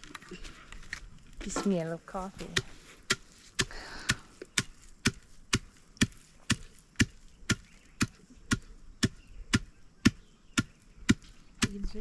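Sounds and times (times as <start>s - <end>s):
pestle pounding in mortar: 2.6s - 11.8s.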